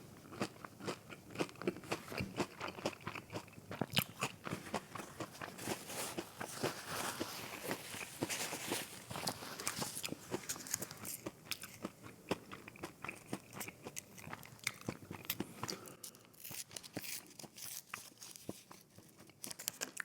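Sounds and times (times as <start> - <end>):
crunchy chewing: 0.2 - 20.0.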